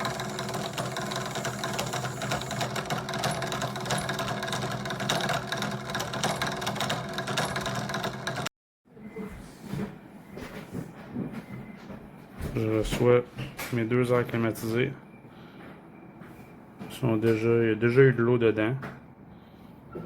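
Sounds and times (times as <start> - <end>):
small electric motor humming and rattling: 0.0 - 8.5.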